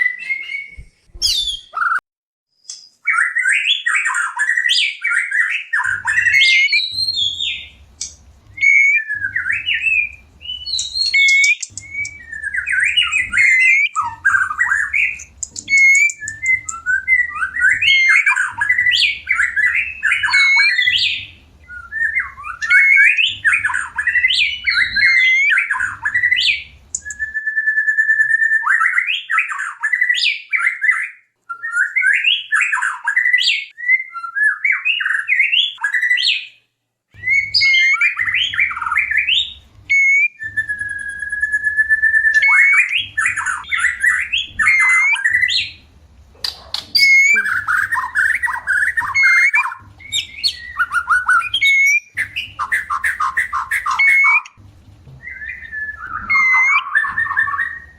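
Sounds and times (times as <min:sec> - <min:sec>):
bird singing whistles and trills: 0:00.0 - 0:02.0, 0:02.6 - 0:36.6, 0:37.2 - 0:45.8, 0:46.4 - 0:54.6, 0:55.2 - 0:57.9.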